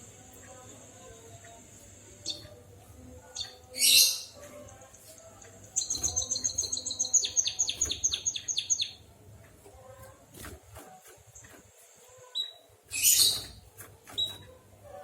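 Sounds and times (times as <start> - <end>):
bird singing: 3.3 - 4.4, 5.7 - 9.0.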